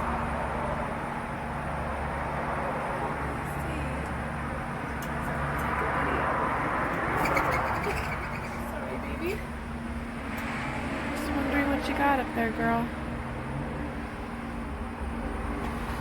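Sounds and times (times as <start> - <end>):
outdoor rumble with low hum: 0.0 - 16.0.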